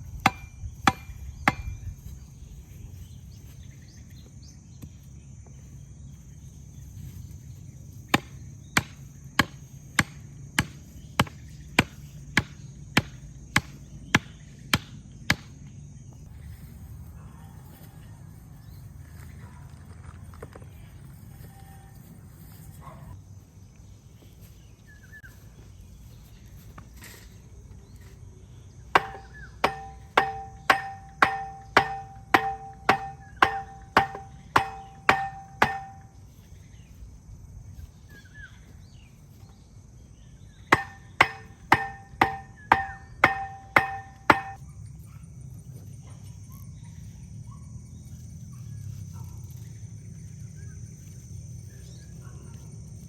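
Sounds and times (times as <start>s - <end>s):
insects droning: 0.0s - 53.0s
hammer blows on metal: 0.2s - 2.0s, 29.0s - 36.2s, 40.7s - 44.6s.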